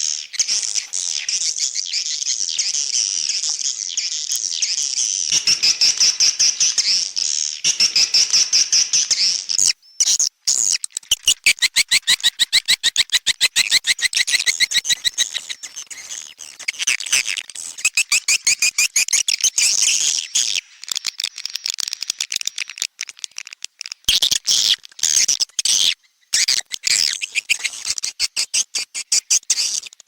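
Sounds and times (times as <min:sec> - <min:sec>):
swiftlets chittering and trilling: 0:05.3 - 0:09.6.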